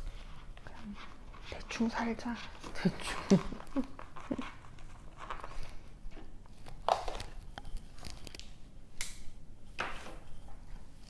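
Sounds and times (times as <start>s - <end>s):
small objects rustling and tapping: 2.5s - 11.0s.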